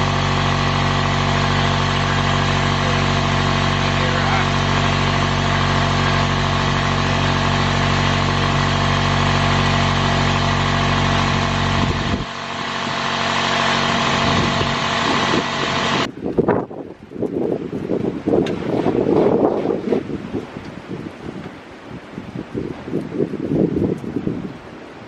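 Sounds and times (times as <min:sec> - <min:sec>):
motor humming: 0:00.0 - 0:16.1
wind buffeting microphone: 0:11.0 - 0:13.1, 0:13.8 - 0:24.9.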